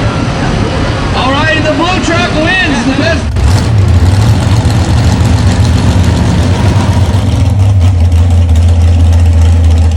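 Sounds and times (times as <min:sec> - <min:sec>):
big truck engine droning: 0:00.0 - 0:09.9.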